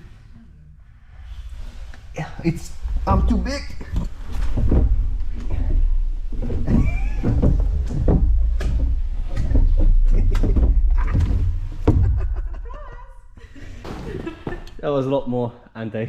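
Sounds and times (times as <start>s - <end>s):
body knocking against slide: 2.6s - 12.6s.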